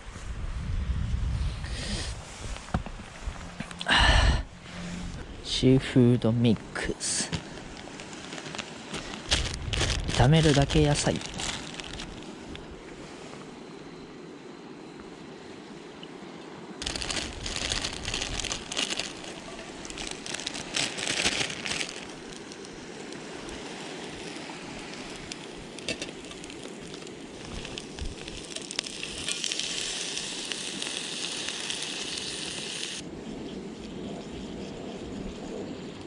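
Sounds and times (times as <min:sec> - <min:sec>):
food sizzling in a hot pan: 0:23.6 - 0:33.0.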